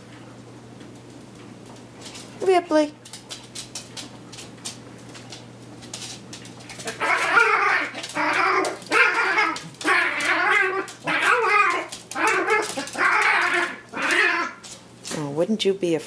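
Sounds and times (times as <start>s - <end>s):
small dog growling and yowling: 6.8s - 14.8s.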